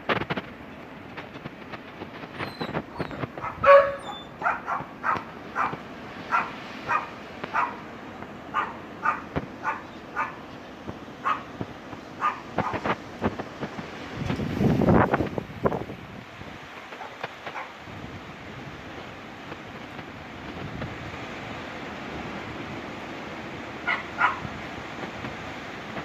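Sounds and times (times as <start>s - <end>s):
wind rushing: 1.6s - 7.8s, 11.6s - 16.6s
dog barking: 2.6s - 7.9s, 8.5s - 10.4s, 11.2s - 11.5s, 12.2s - 12.9s, 17.0s - 17.8s, 23.8s - 24.5s.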